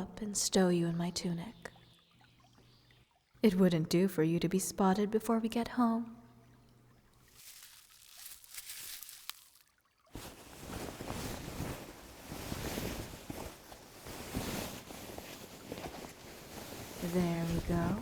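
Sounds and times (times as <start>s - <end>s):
cloth rustling: 7.2s - 18.0s.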